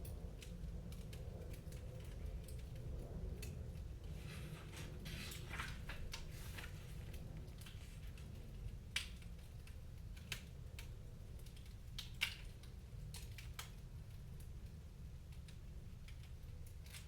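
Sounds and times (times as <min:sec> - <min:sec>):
low fire rumble: 0:00.0 - 0:17.0
wood fire pops and snaps: 0:07.1 - 0:14.6.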